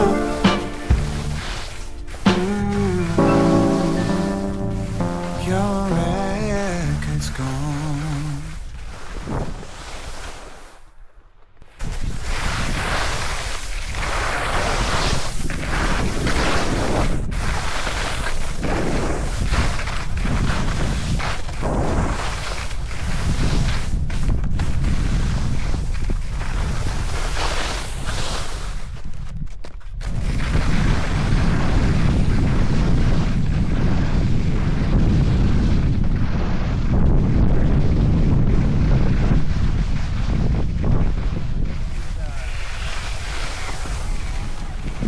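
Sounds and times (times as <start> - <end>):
wind rushing over microphone: 30.1 - 45.0.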